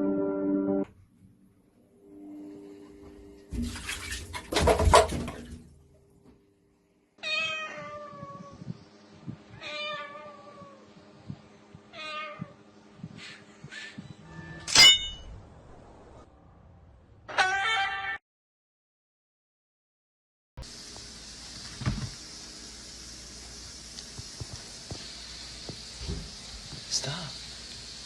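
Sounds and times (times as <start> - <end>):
cat meowing: 7.2 - 8.7, 9.5 - 10.8, 11.9 - 12.6, 17.3 - 18.2.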